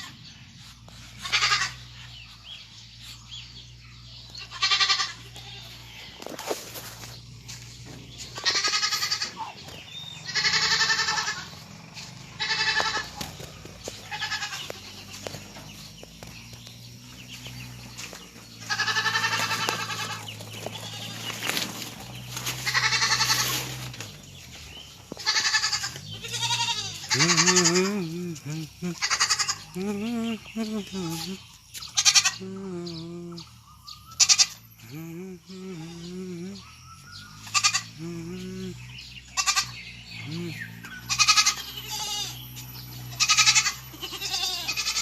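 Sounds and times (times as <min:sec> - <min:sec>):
steady low hum: 0:00.0 - 0:45.0
livestock bleating: 0:01.1 - 0:02.2, 0:04.1 - 0:06.1, 0:08.1 - 0:15.8, 0:17.3 - 0:24.0, 0:25.1 - 0:33.5, 0:34.2 - 0:36.6, 0:37.4 - 0:45.0.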